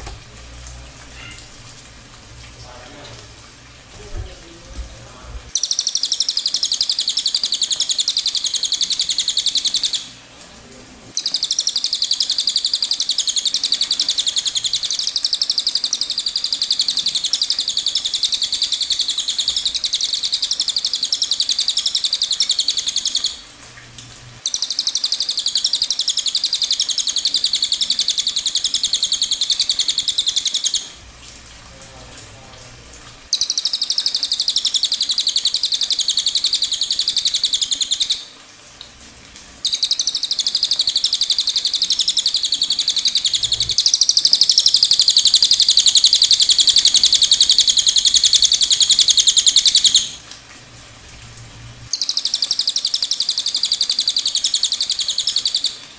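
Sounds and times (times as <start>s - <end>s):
songbird trilling: 5.5s - 10.1s, 11.2s - 23.4s, 24.4s - 30.9s, 33.3s - 38.2s, 39.6s - 50.2s, 51.9s - 55.8s.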